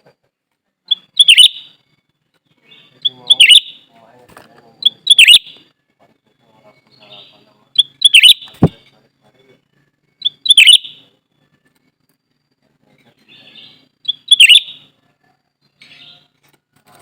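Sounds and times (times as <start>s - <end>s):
soft chattering bird calls: 0.8s - 16.6s
bubbly bird song phrases: 0.9s - 1.8s, 2.6s - 3.9s, 4.8s - 5.6s, 6.3s - 8.9s, 10.2s - 11.3s, 13.1s - 14.9s.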